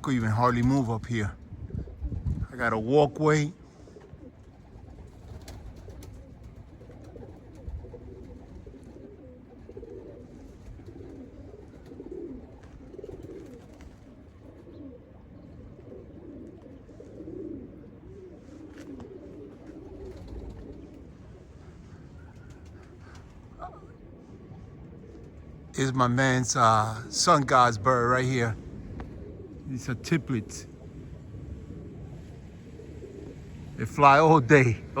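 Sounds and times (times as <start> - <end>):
pigeons cooing: 0.0 - 35.0.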